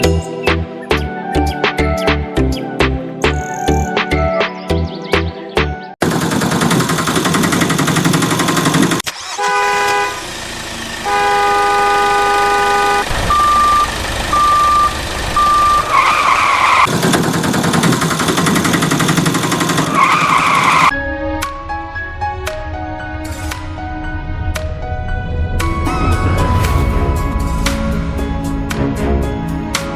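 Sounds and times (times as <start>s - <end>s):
vehicle engine running: 6.0s - 20.9s
horn honks: 9.1s - 10.4s, 11.0s - 16.9s.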